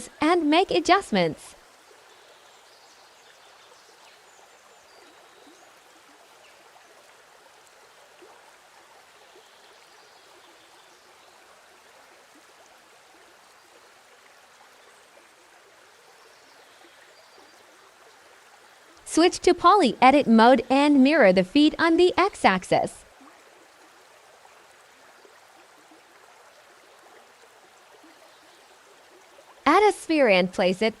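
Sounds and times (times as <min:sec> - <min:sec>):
faint steady rushing noise: 0:18.6 - 0:23.2, 0:29.6 - 0:31.0.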